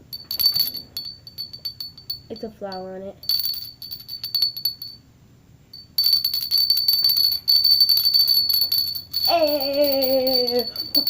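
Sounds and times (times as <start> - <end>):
small bell jingling: 0.0 - 5.0, 5.7 - 11.0
person humming or singing: 9.3 - 10.8.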